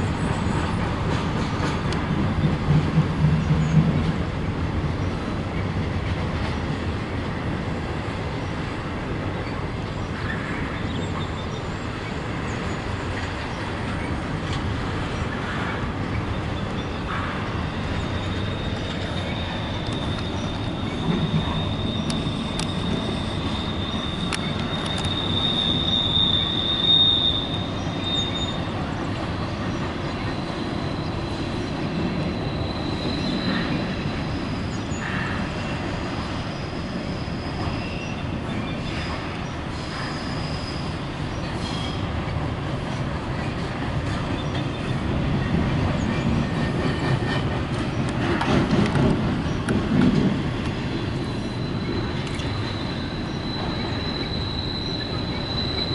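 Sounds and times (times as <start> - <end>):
rail joint clicks: 0.0 - 55.9
train wheels rumbling on rail: 0.0 - 55.9
high wheel squeal: 15.6 - 42.1, 50.7 - 55.9.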